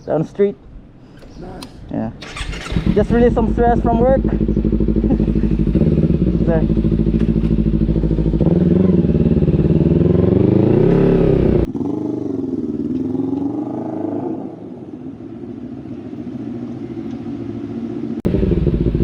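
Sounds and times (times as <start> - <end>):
motorcycle engine revving: 2.2 - 14.8, 18.1 - 19.0.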